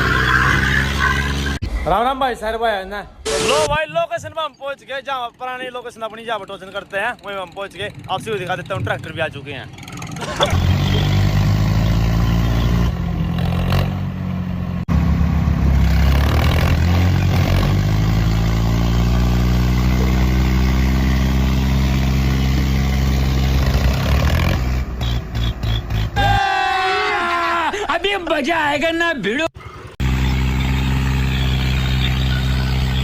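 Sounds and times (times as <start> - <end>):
diesel tractor engine revving: 9.7 - 26.4, 29.6 - 33.0.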